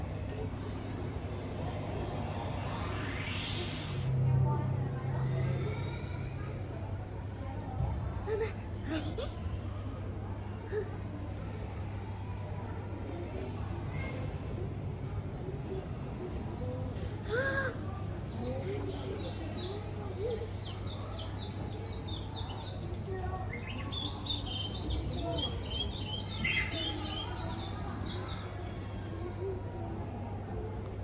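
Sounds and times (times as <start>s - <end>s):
steady low hum: 0.0s - 22.4s
faint voices: 0.0s - 31.0s.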